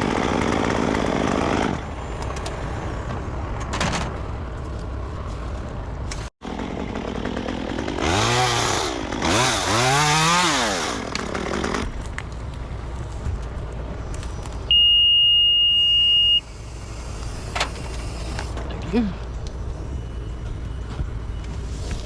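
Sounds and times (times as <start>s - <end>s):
chainsaw revving: 0.0s - 1.8s, 6.4s - 11.9s.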